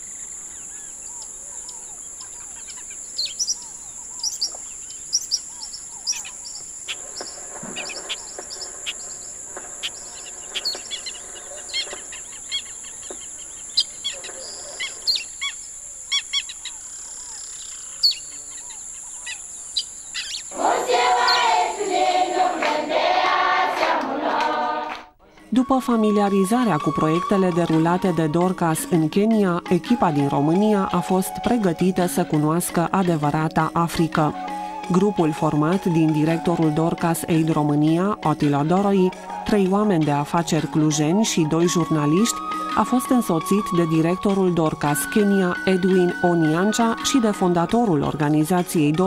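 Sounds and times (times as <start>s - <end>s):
wild birds chirping and calling: 0.0s - 21.7s
outdoor ambience hiss: 0.0s - 49.0s
choir singing: 20.5s - 25.2s.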